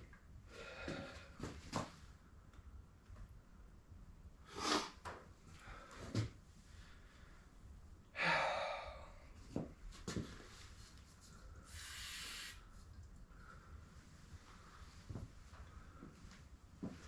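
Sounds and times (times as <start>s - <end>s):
short hissing bursts: 11.7s - 12.7s.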